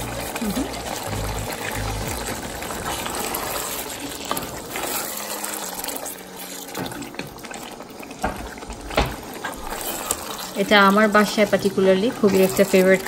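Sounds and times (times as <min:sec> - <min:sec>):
curry sizzling in oil: 0:00.0 - 0:13.0.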